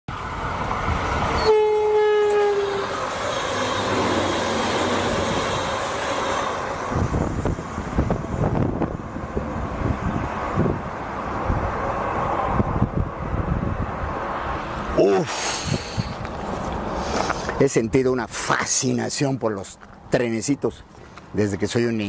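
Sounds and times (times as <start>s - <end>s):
rush of train passing: 0.1s - 18.4s
train horn blast: 1.4s - 4.3s.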